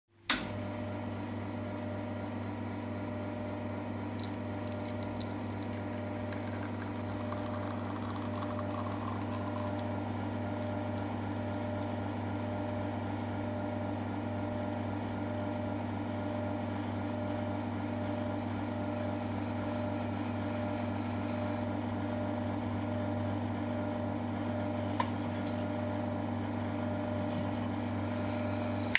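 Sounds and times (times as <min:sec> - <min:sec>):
switch click: 0:00.3 - 0:00.5
espresso pump humming: 0:00.5 - 0:28.9.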